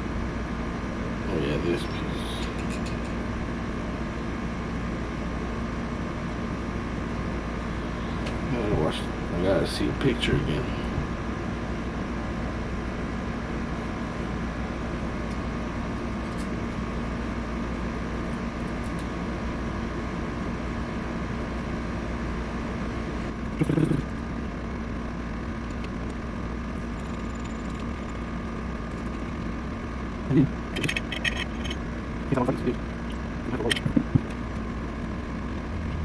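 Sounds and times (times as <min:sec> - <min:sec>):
steady mechanical hum: 0:00.0 - 0:36.0.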